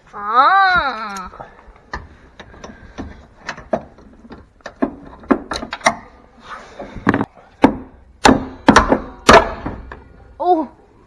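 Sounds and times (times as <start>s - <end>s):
sharp knocks on truck door: 7.0s - 10.1s.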